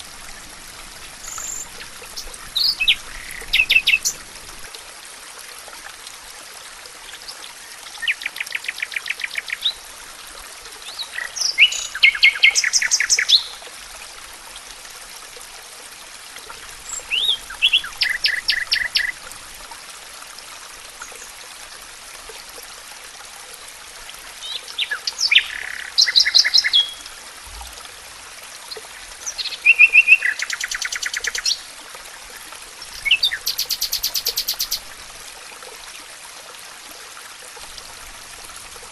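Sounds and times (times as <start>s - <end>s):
songbird trilling: 1.2s - 4.2s, 16.9s - 19.1s, 33.0s - 34.8s.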